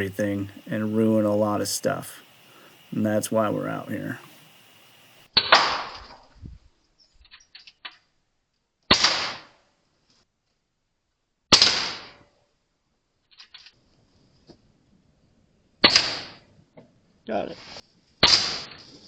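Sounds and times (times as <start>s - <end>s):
air rifle shots: 5.3s - 6.2s, 8.9s - 9.6s, 11.5s - 12.2s, 15.8s - 16.5s, 18.2s - 18.9s.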